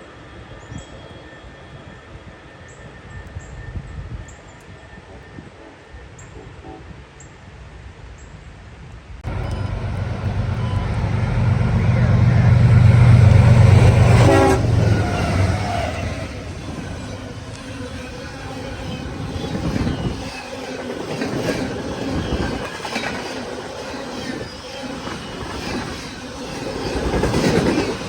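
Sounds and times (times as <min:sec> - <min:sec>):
locomotive engine rumble: 0:09.2 - 0:22.8
train wheels clicking on rails: 0:09.2 - 0:28.0.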